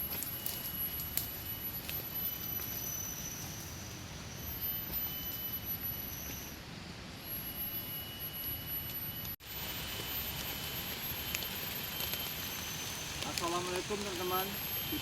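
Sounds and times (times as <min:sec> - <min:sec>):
insects whistling: 0:00.0 - 0:15.0
heavy rain in forest: 0:09.4 - 0:15.0.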